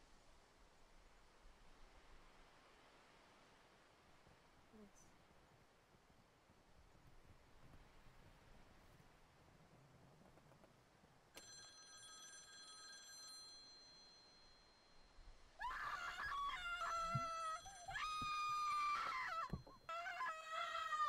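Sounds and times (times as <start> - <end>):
metallic bell-like ring: 11.4 - 15.4
high-pitched wavering cry: 15.6 - 21.0.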